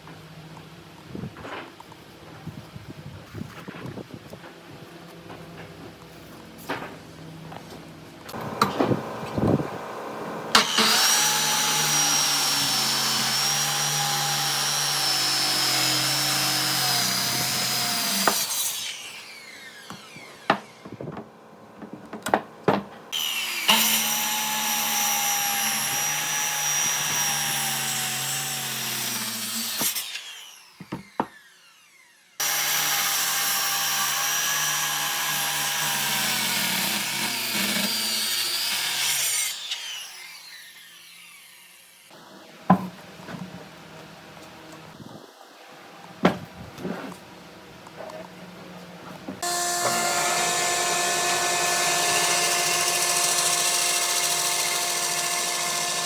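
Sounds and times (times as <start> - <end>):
power tool cutting wood: 8.3 - 21.1, 23.1 - 42.2, 49.4 - 56.0
power tool whine: 8.3 - 21.2, 23.1 - 42.2, 49.4 - 56.0.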